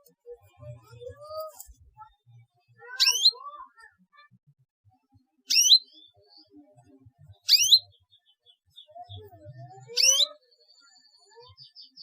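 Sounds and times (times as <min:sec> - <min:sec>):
canary chirp calls: 0:02.8 - 0:03.6, 0:05.5 - 0:06.5, 0:07.4 - 0:12.0.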